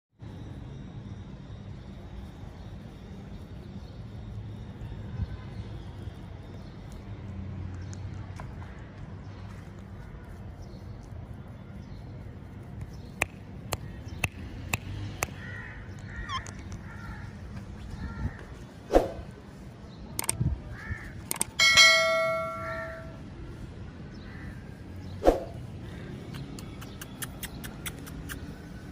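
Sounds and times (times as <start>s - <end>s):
sharp taps and clicks: 12.8s - 15.4s, 20.2s - 20.4s, 21.2s - 21.6s
bright ringing ding: 21.6s - 23.1s.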